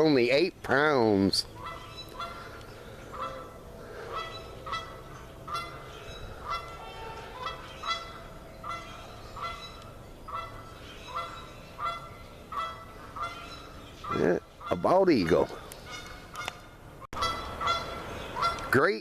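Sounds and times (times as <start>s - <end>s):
geese honking: 1.5s - 18.9s.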